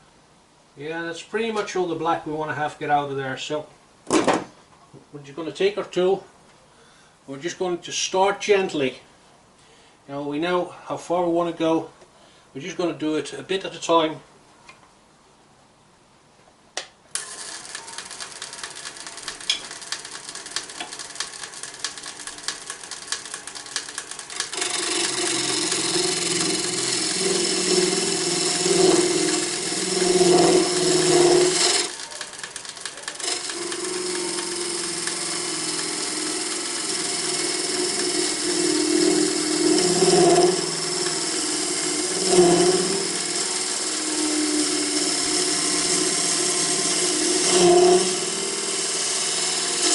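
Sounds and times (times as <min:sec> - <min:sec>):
turning tool cutting wood: 0:17.2 - 0:49.9
wood lathe running: 0:17.2 - 0:49.9.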